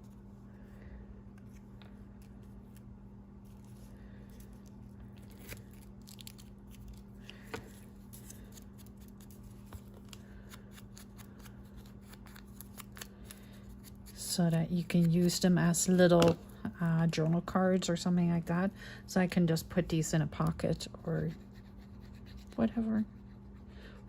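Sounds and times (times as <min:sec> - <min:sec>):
paper and cards handling: 0:01.4 - 0:14.2.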